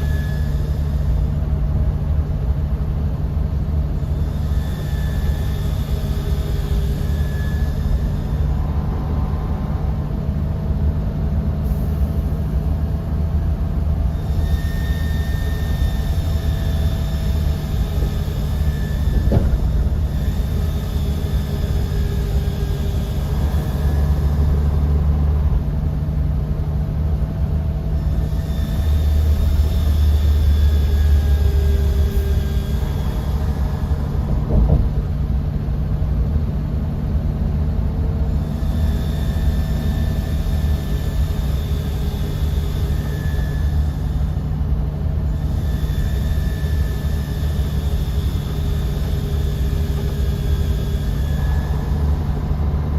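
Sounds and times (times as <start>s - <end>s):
bus engine and road rumble: 0.0s - 52.9s
faint whining tones: 0.0s - 52.9s.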